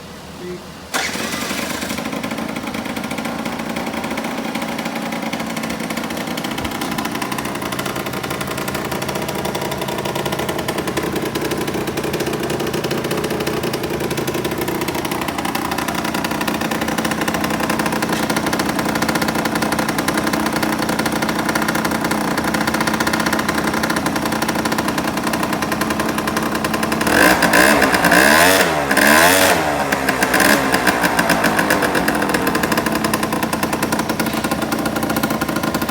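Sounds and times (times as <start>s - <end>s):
scooter engine idling and revving: 0.0s - 35.9s.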